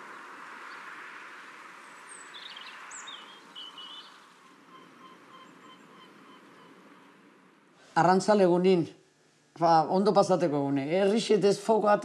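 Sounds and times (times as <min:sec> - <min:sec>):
birds chirping: 0:00.0 - 0:07.8
steady background hiss: 0:00.0 - 0:12.0.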